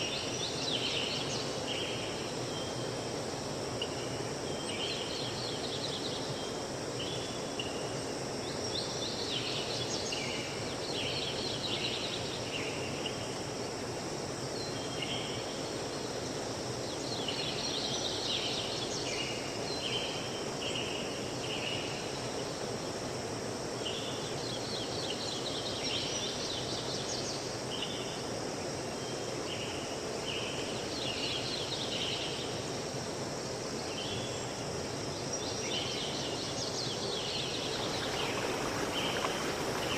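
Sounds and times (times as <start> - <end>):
songbirds chirping: 35.2 - 39.9
stream flowing: 36.5 - 39.9.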